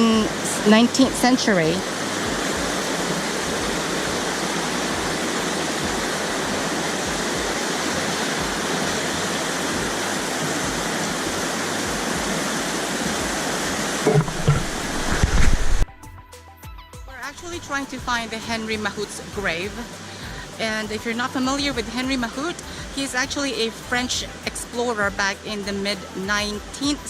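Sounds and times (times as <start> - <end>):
flowing water rushing: 0.0 - 15.9, 17.3 - 27.0
brief low bump: 14.1 - 15.9.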